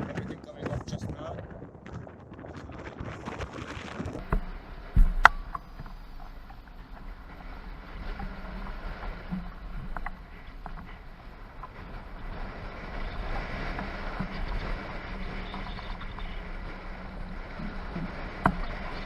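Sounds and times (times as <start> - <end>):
wind and rain rushing hiss: 0.0 - 19.0
low steady hum: 4.2 - 19.0.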